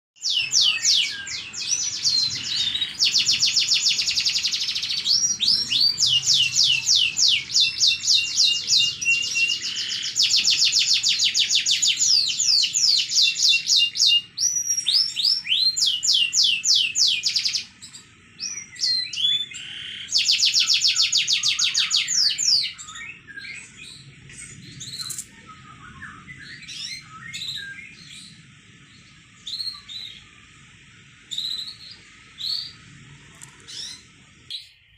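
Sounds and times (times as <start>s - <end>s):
canary trilling: 0.2s - 24.1s, 31.3s - 34.2s
soft bird chirps: 0.2s - 34.9s.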